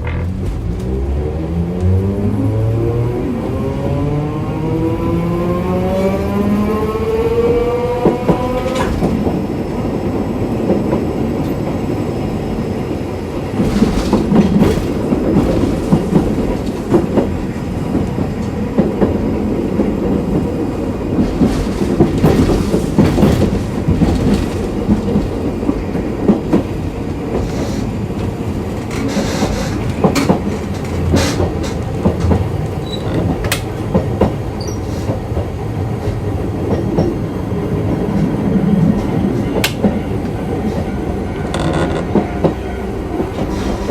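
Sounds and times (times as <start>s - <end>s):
tram motor whine: 0.0s - 43.9s
wheels rumbling on rail: 0.0s - 43.9s
clacks over rail joints: 13.5s - 37.2s, 37.9s - 43.9s.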